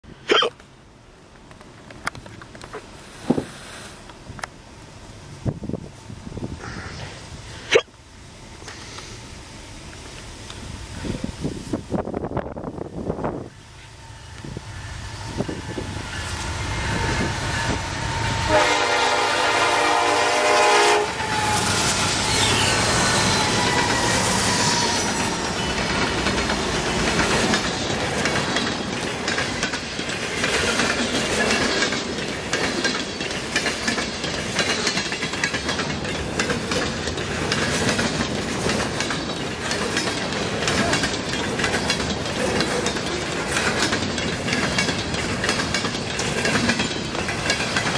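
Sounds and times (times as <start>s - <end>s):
train wheels clattering: 15.4s - 47.9s
train horn blast: 18.3s - 25.7s.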